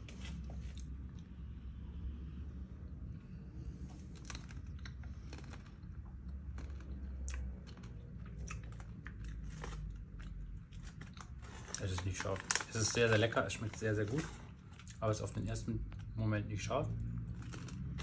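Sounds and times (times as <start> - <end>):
steady low hum: 0.0 - 18.0
person chewing crunchy almond: 3.8 - 11.8, 17.2 - 18.0.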